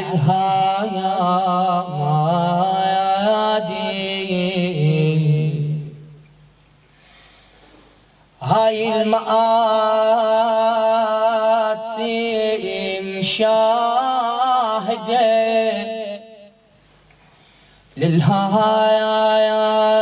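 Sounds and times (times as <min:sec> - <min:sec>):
man chanting unaccompanied: 0:00.0 - 0:06.2, 0:08.4 - 0:16.8, 0:18.0 - 0:20.0.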